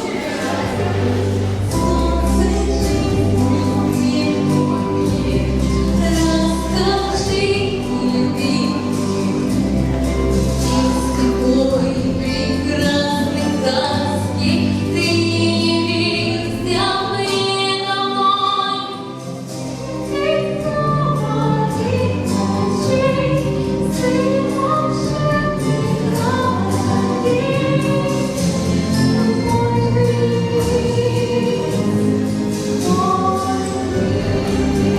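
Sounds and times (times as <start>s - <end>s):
choir singing long held notes: 33.3s - 34.9s.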